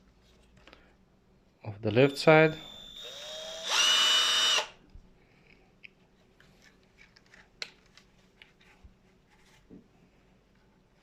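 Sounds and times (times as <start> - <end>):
impact wrench motor whining: 2.5 - 4.8.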